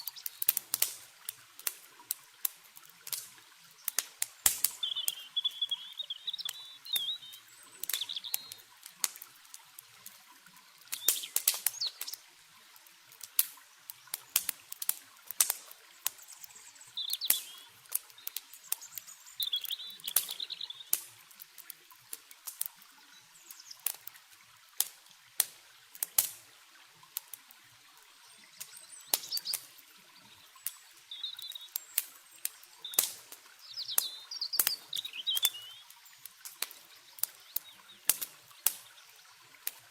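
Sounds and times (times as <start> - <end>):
campfire crackling and popping: 0.0 - 39.9
running water: 0.0 - 39.9
birds twittering: 4.6 - 8.7, 10.9 - 12.2, 16.1 - 21.0, 28.2 - 39.2.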